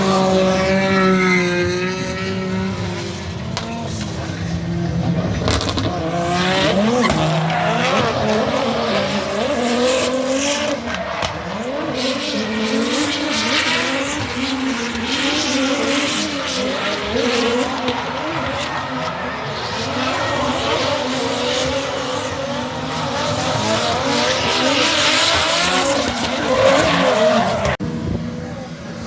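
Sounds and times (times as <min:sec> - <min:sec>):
car engine revving hard: 0:00.0 - 0:28.4
tyres squealing and skidding: 0:05.6 - 0:12.6, 0:17.5 - 0:27.8.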